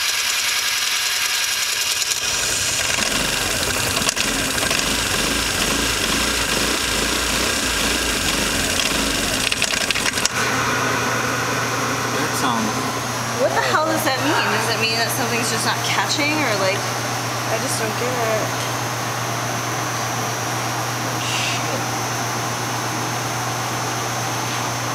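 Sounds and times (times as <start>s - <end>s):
scooter engine starting and running: 0.0s - 10.8s.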